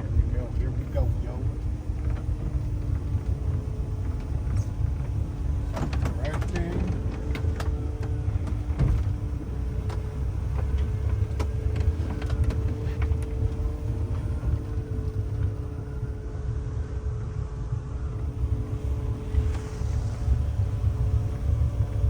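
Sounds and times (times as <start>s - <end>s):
boat engine idling: 0.0s - 16.2s, 18.2s - 22.0s.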